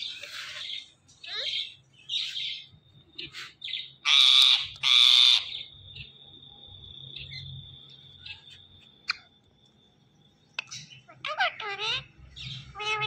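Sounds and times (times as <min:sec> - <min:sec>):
parrot screeching calls: 0:04.0 - 0:05.6, 0:11.1 - 0:12.1, 0:12.7 - 0:13.0.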